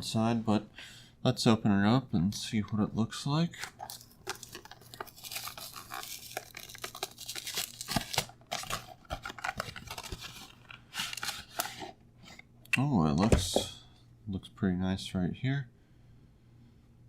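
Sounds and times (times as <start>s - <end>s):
packaging crinkling and rustling: 3.6s - 12.4s
cardboard box tearing: 3.8s - 11.6s.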